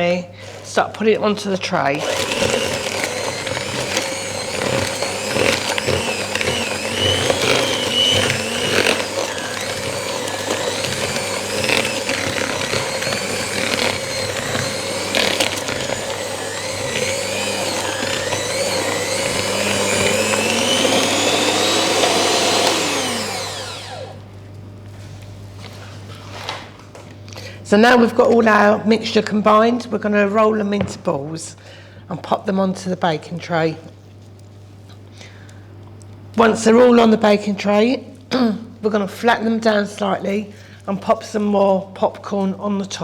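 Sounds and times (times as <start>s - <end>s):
electric mixer running: 0.5s - 24.3s.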